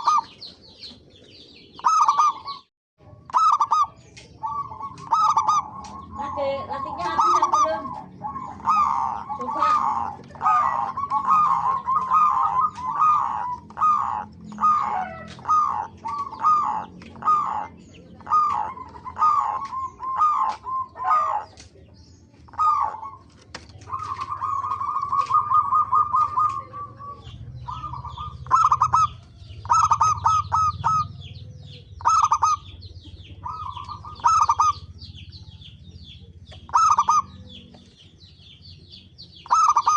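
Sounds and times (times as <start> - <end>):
doves cooing with trills: 0.0 - 39.9.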